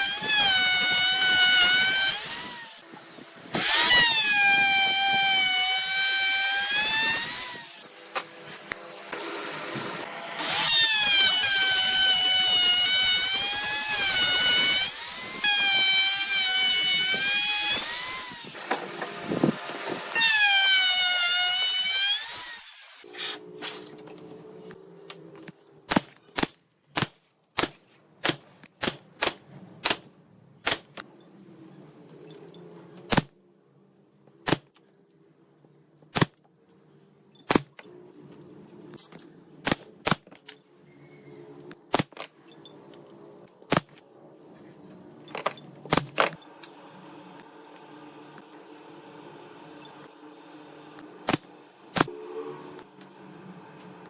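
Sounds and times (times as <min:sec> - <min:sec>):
power tool motor whining: 0:00.0 - 0:07.9, 0:09.0 - 0:23.0
faint hum: 0:40.5 - 0:54.0.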